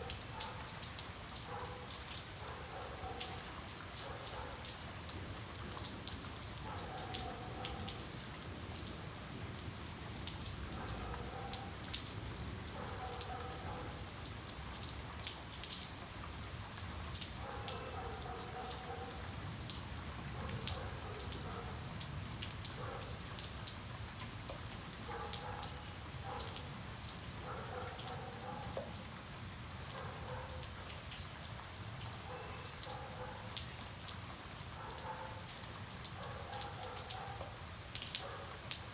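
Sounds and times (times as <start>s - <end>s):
raindrops ticking on hard surface: 0.0s - 38.9s
steady rain falling: 0.0s - 38.9s.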